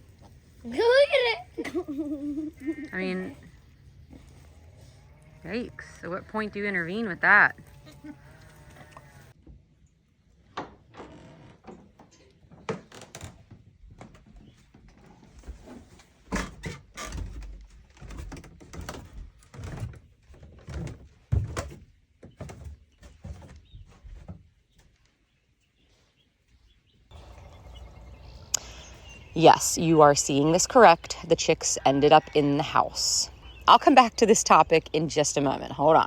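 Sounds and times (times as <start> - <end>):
knocks and thumps: 16.3 - 24.5.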